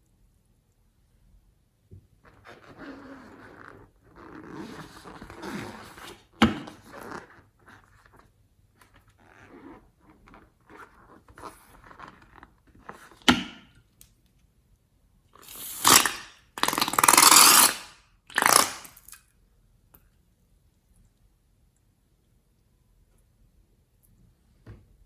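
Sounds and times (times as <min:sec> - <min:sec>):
crackling squelching slime: 0:15.4 - 0:19.2
slime popping: 0:15.5 - 0:19.2
slime squishing: 0:15.5 - 0:19.2.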